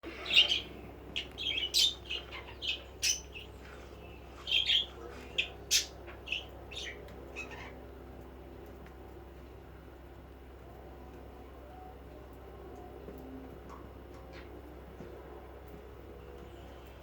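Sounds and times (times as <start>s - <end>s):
budgerigars chirping: 0.1s - 7.7s.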